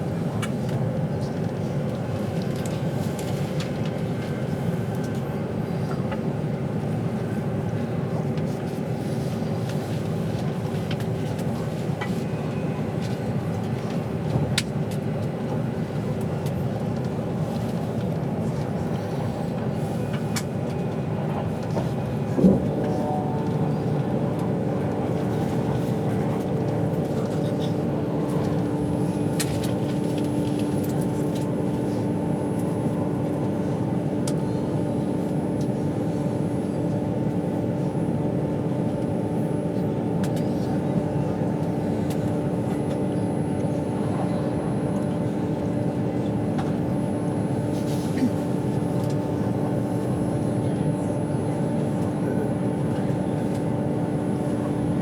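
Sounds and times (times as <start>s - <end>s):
train interior rumble: 0.0s - 55.0s.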